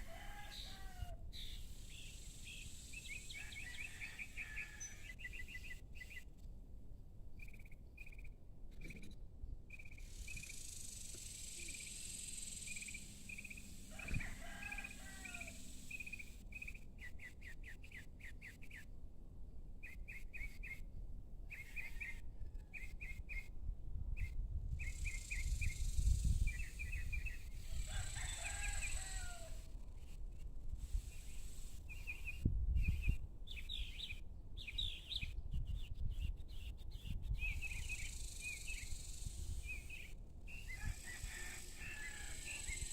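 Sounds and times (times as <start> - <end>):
small birds chirping: 7.4 - 18.9
long falling bird calls: 9.7 - 16.8.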